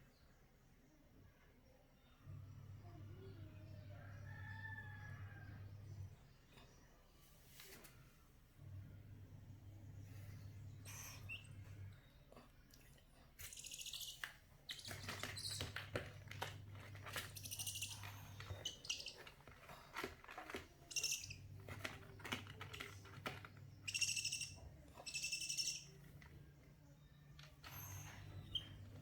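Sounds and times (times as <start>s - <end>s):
low steady hum: 8.0s - 29.0s
baby owl calling: 13.5s - 15.8s, 17.3s - 19.3s, 20.9s - 21.4s, 23.8s - 26.0s.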